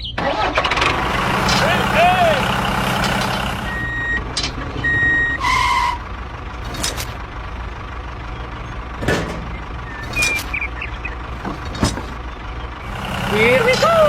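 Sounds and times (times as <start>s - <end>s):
vehicle engine running: 0.0s - 14.0s
small squeaks: 3.1s - 7.2s, 8.4s - 14.0s.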